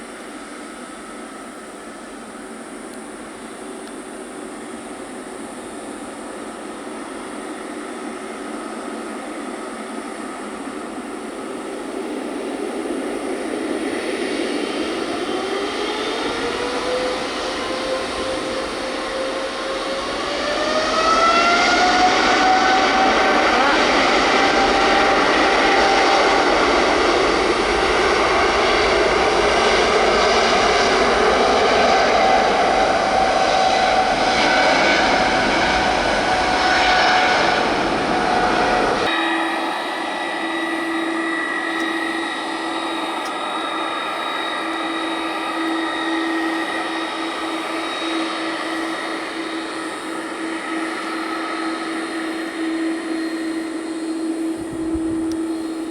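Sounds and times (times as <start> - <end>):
jet engines whining: 0.0 - 55.9
steady hum with held tone: 36.0 - 55.9.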